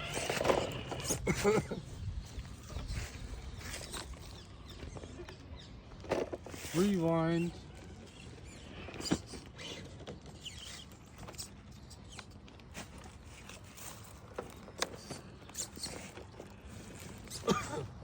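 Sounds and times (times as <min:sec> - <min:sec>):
toy truck clicks and crackles: 0:00.0 - 0:01.4, 0:07.6 - 0:17.4.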